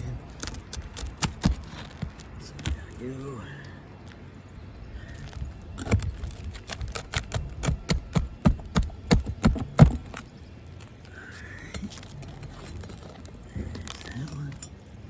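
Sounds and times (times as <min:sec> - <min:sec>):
hammer striking nails: 0:06.7 - 0:10.2.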